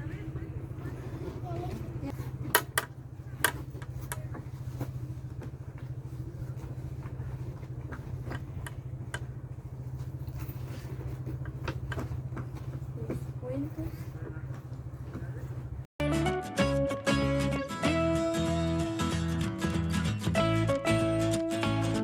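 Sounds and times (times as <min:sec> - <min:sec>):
engine idling: 0:00.0 - 0:15.9
light clicks and knocks: 0:06.6 - 0:15.7.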